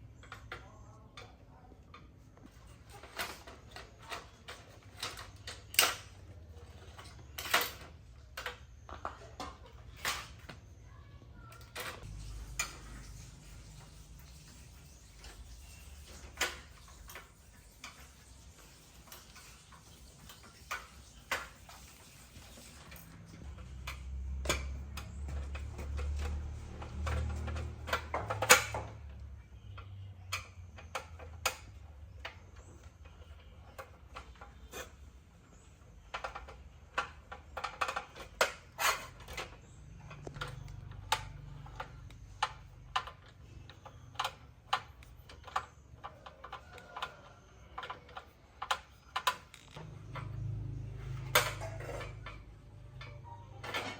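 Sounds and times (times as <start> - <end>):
tools clicking and knocking: 0.1 - 10.6, 15.2 - 53.9.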